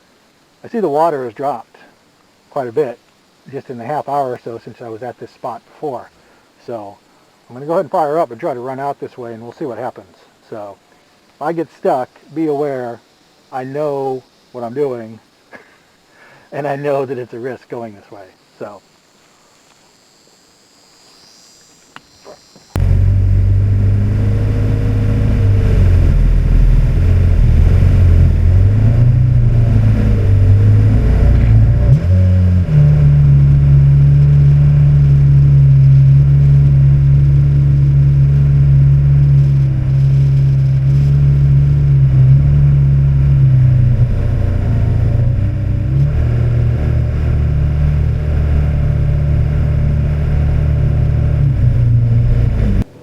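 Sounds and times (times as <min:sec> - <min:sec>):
outboard motor running: 0:22.2 - 0:52.8.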